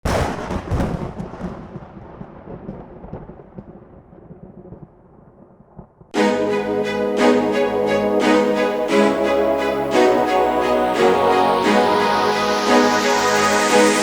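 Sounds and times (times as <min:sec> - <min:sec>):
deep boom rumbling: 0:00.1 - 0:06.1
orchestral music: 0:06.2 - 0:14.0.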